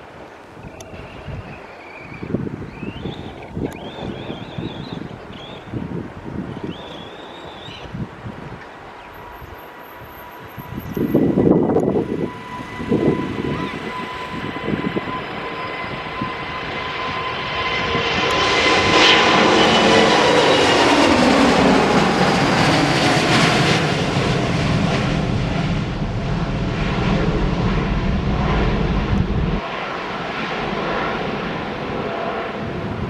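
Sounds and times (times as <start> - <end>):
jet engines at takeoff power: 0.0 - 33.0
deep rumble: 20.6 - 33.0.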